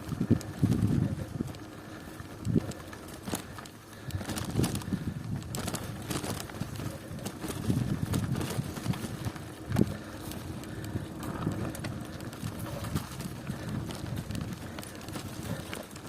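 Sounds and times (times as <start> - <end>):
bicycle riding over rough road: 0.0 - 16.0.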